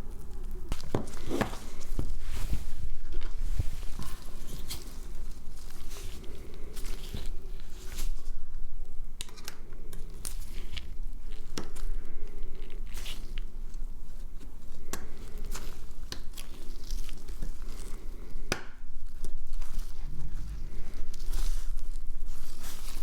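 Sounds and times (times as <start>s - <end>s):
steady low rumble: 16.7s - 23.0s.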